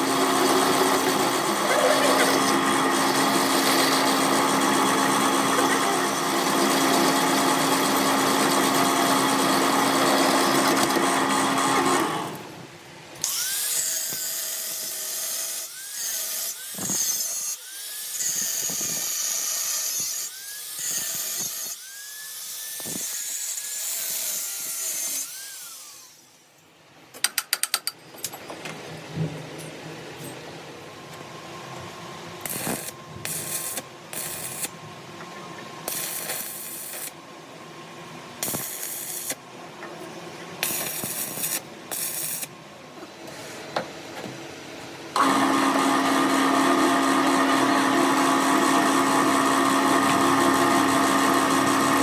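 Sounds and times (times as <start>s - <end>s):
power tool whining: 0.0s - 12.5s, 45.2s - 52.0s.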